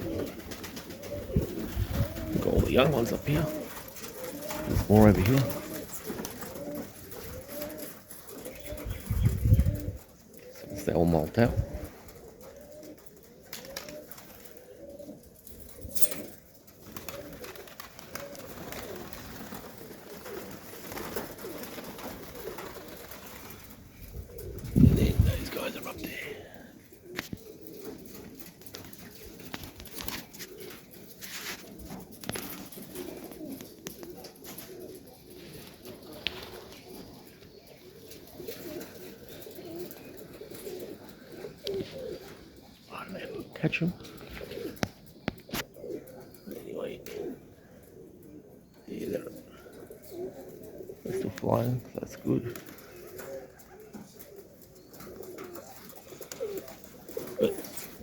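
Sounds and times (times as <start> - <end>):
pigeons cooing: 0.0 - 58.0.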